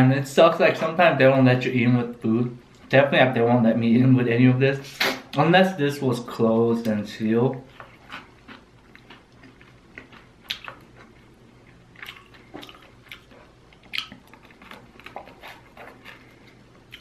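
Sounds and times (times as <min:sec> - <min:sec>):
sticky chewing clicks: 0:07.8 - 0:11.2, 0:12.0 - 0:16.3
lip smacks: 0:10.1 - 0:11.0, 0:12.0 - 0:16.2.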